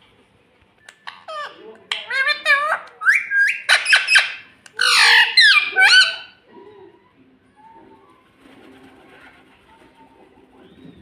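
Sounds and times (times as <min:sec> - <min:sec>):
parakeet shrill calls: 0:02.1 - 0:06.4.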